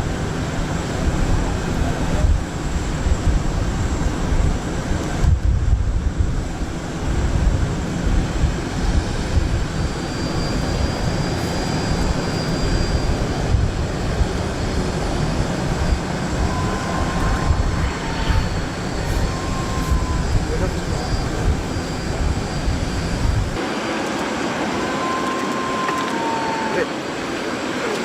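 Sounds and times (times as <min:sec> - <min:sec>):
jet engines rumbling: 0:00.0 - 0:28.0
thin high whine: 0:14.6 - 0:27.7.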